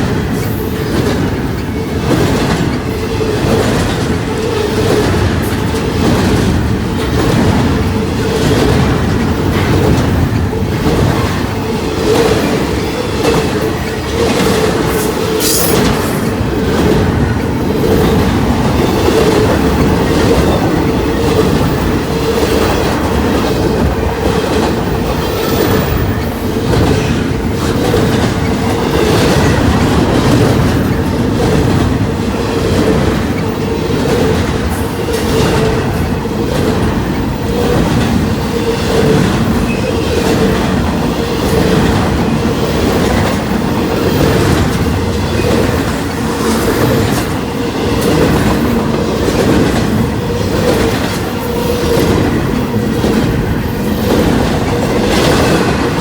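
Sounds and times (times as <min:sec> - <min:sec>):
train wheels clicking over rail joints: 0:00.0 - 0:56.0.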